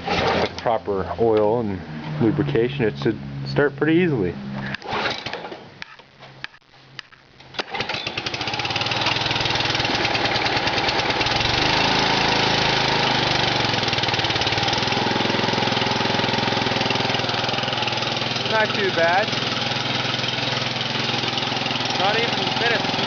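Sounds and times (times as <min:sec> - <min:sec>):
small engine starting and running: 0:00.0 - 0:00.6, 0:04.6 - 0:05.6, 0:07.6 - 0:23.0.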